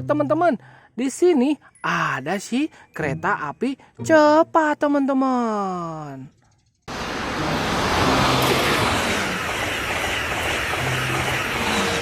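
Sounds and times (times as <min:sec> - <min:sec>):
train rushing rumble: 0:06.9 - 0:12.0.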